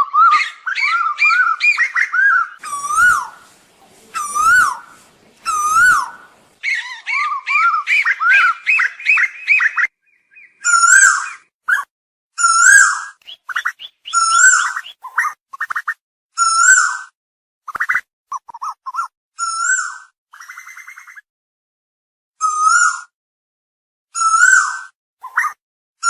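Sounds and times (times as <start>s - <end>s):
koel calling: 2.6s - 11.4s, 12.5s - 15.4s.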